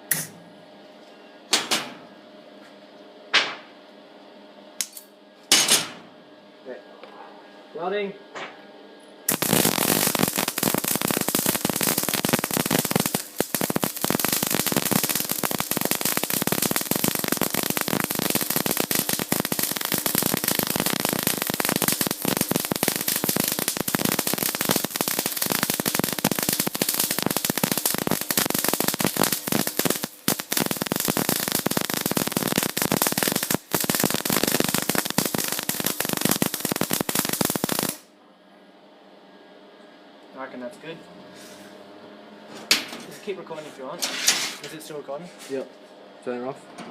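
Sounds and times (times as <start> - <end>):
arc welding crackle: 9.3 - 38.1.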